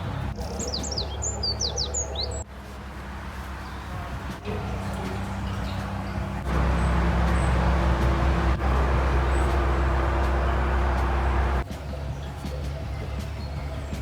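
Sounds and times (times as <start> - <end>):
boat engine drone: 3.1 - 11.7.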